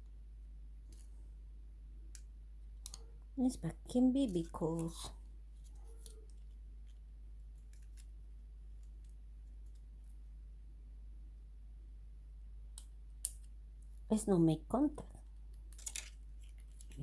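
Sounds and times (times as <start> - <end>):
low hum: 0.0 - 17.0
faint clicks of small parts: 0.8 - 1.2, 2.1 - 3.3, 4.2 - 8.2, 8.8 - 10.2, 12.7 - 14.1, 15.3 - 17.0.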